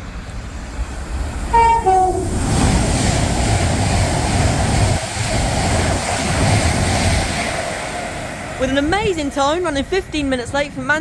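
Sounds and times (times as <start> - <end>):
train passing with rush of wheels: 0.0 - 11.0
two-tone train horn: 1.5 - 2.5.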